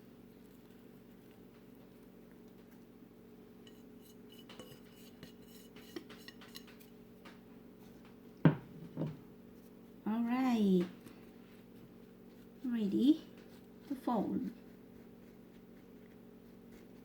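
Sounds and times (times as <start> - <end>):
utensil clinking against dish: 3.6 - 6.9.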